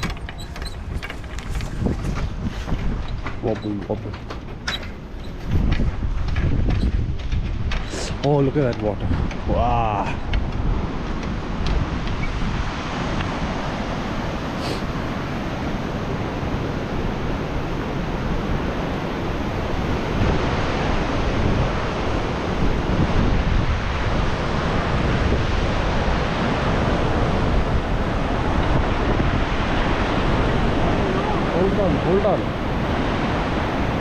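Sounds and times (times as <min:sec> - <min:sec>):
wind buffeting microphone: 0:00.0 - 0:34.0
river rushing: 0:07.9 - 0:34.0.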